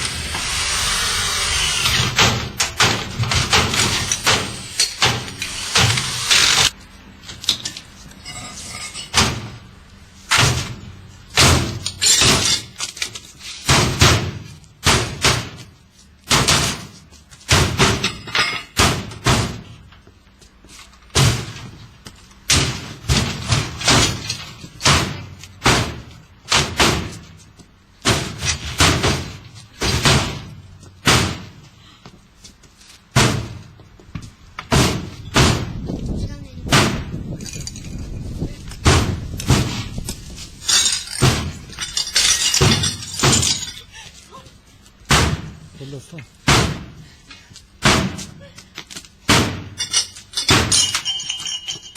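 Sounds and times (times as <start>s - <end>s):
hard bangs on washing machine: 10.3s - 12.4s, 13.7s - 15.6s, 18.8s - 19.6s, 24.8s - 27.2s, 28.0s - 31.6s, 33.2s - 33.6s, 34.7s - 35.8s, 36.7s - 37.2s, 38.8s - 39.8s, 46.4s - 47.0s, 47.8s - 48.2s, 49.3s - 49.8s.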